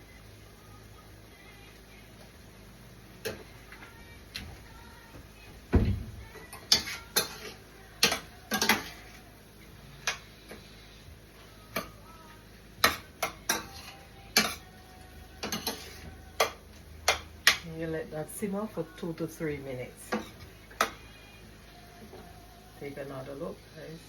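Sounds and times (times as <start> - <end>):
heavy thump: 5.5 - 6.3.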